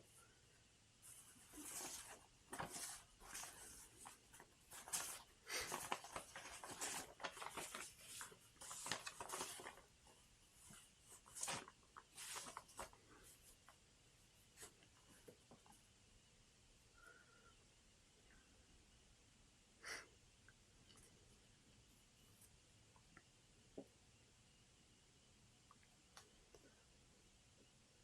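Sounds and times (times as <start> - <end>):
faint rustling and scratching: 1.0 - 16.0, 20.9 - 22.6.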